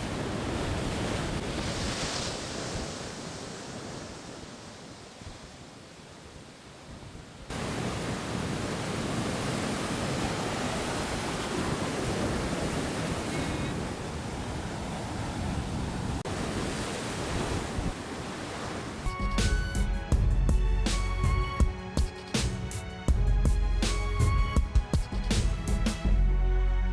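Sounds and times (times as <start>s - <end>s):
waves breaking: 0.0s - 20.1s
music: 19.1s - 26.9s.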